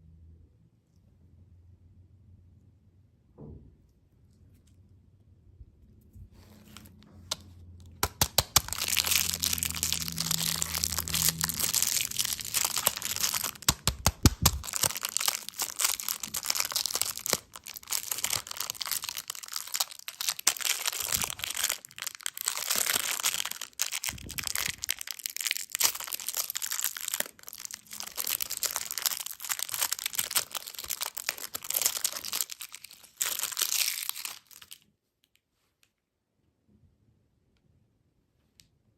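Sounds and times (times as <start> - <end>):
plastic wrappers crinkling: 6.6 - 35.4.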